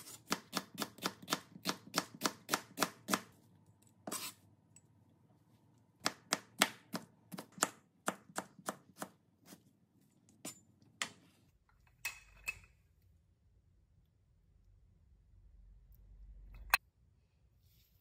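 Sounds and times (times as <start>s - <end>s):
knife chopping vegetables: 0.0s - 3.4s, 5.9s - 11.2s.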